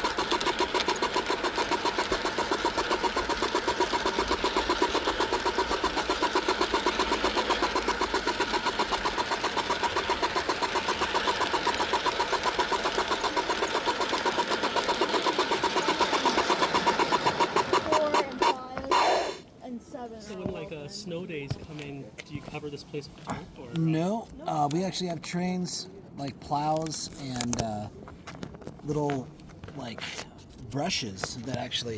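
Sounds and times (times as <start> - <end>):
model train wheels clattering: 0.0 - 19.4.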